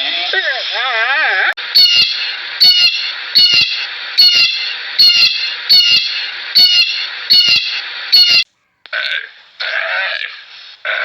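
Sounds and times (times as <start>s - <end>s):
steady hiss: 10.2s - 10.9s.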